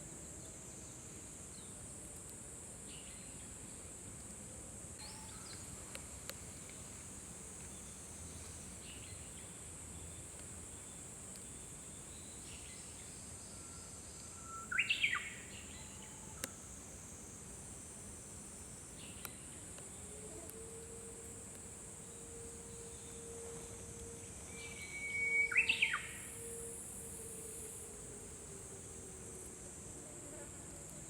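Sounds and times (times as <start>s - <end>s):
high-pitched insect drone: 20.4s - 29.4s
bird singing whistled phrase: 24.6s - 26.3s
distant bird song: 24.6s - 26.5s.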